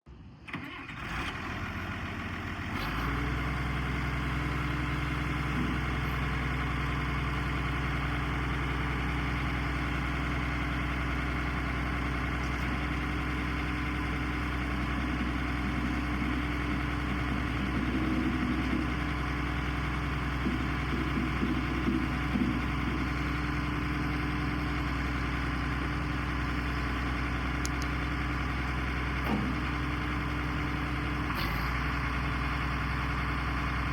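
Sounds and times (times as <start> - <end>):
tractor diesel engine starting and idling: 0.1 - 33.9.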